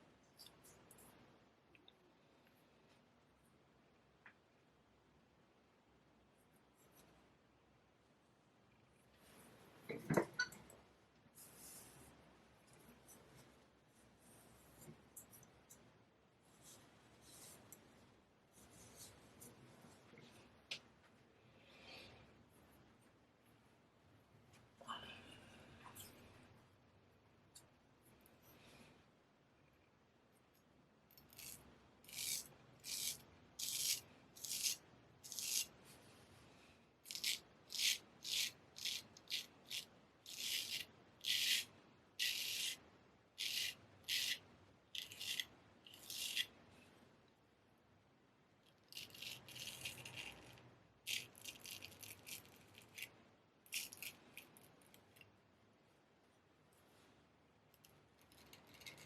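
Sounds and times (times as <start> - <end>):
straight razor scraping: 31.3 - 35.8, 37.1 - 42.8, 43.4 - 44.4, 45.0 - 46.5.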